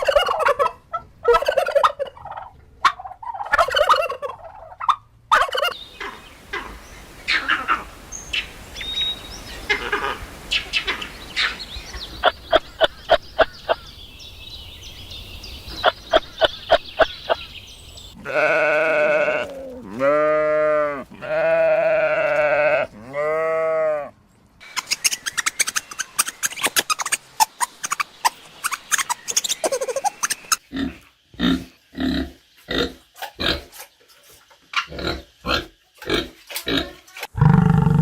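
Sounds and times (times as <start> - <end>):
farm animal bleating: 18.2 - 24.2.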